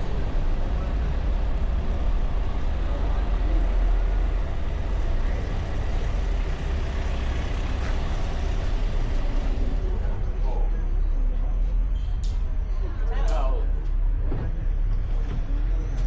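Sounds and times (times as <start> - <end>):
car engine: 0.0 - 10.4
wind and tyre rumble: 0.0 - 11.2.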